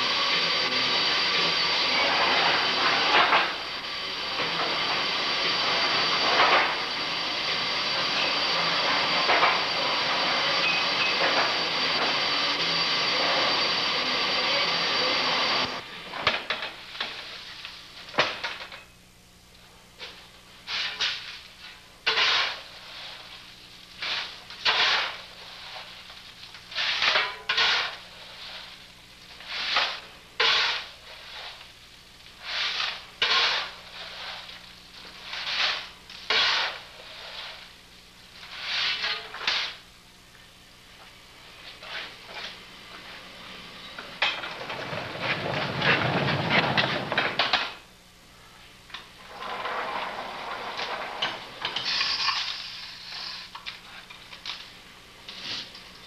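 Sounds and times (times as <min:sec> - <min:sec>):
long steam hiss: 0:00.0 - 0:15.8, 0:20.4 - 0:27.0, 0:27.8 - 0:39.9
faint steady hum: 0:14.0 - 0:56.0.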